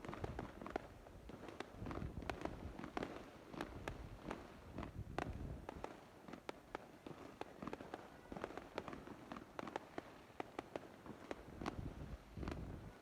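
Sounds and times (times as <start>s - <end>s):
fireworks popping and banging: 0.0s - 13.0s.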